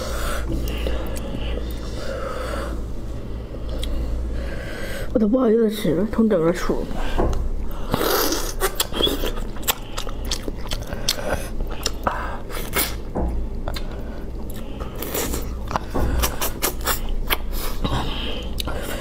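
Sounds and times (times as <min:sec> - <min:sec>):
wet chewing and lip-smacking: 0:07.6 - 0:19.0.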